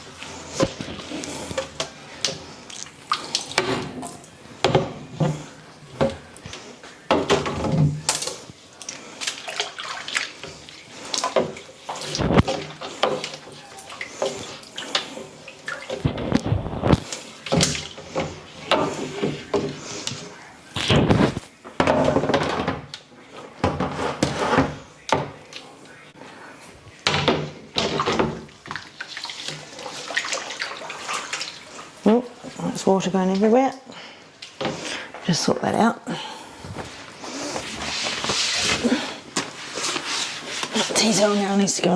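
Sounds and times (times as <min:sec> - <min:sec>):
tap water running and splashing: 0:00.0 - 0:20.3, 0:27.0 - 0:33.8
containers knocking and clattering: 0:03.5 - 0:08.5, 0:20.8 - 0:23.0.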